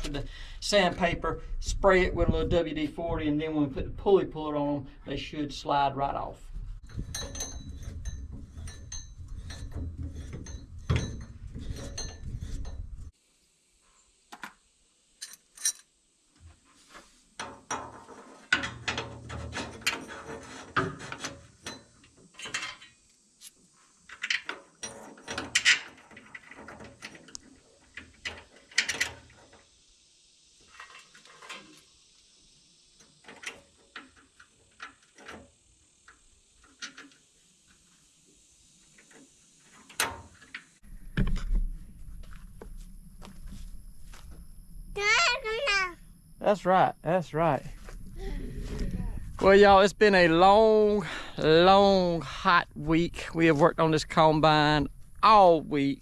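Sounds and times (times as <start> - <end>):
tools clinking against steel: 7.0 - 12.8, 15.2 - 15.9
steady low rumble: 45.9 - 56.0.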